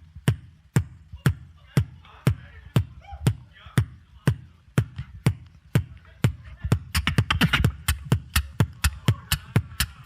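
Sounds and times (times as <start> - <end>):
beatboxing kick and snare: 0.0 - 10.0.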